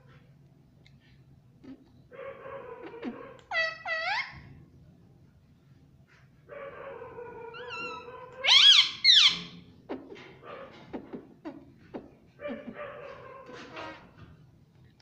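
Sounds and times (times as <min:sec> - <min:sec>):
parakeet calling: 0:03.5 - 0:04.4, 0:07.6 - 0:09.6.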